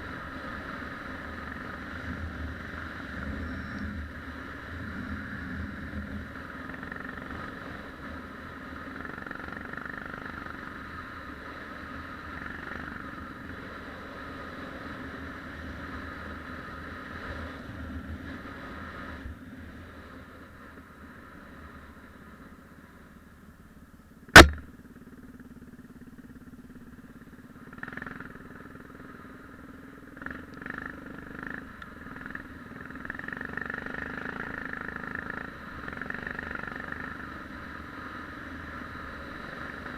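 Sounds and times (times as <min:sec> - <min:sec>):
motorcycle engine running: 0:00.0 - 0:17.6, 0:22.2 - 0:39.9
sharp knock: 0:24.4 - 0:24.7.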